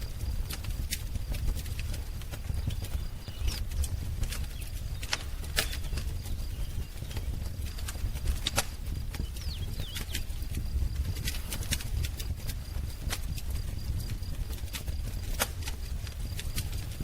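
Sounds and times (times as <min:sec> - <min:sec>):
wood fire crackling: 0:00.0 - 0:17.0
faint bird chirps: 0:02.5 - 0:08.4, 0:09.2 - 0:10.4.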